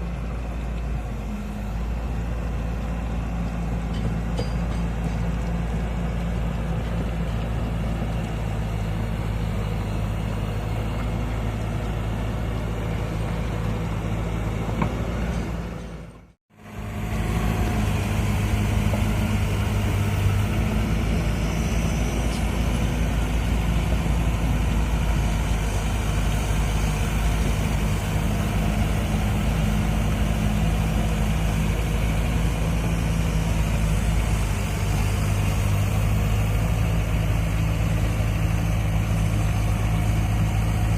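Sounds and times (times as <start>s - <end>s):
excavator diesel engine digging: 0.0s - 40.9s.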